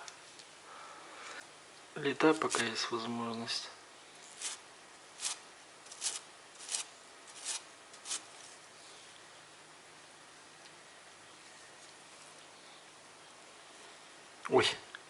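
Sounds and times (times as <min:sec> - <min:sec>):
spatula scraping grout: 0:04.3 - 0:04.6, 0:05.2 - 0:08.3.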